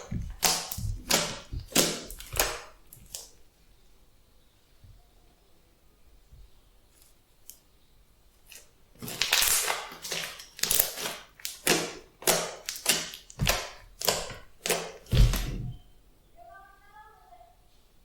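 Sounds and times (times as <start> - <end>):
slime squishing: 0.0 - 3.4, 8.4 - 15.8.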